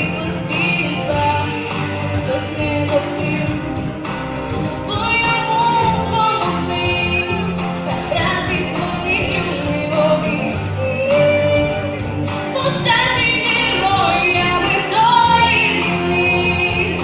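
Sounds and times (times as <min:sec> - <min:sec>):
backing track: 0:00.0 - 0:17.0
girl singing a pop ballad: 0:00.0 - 0:17.0.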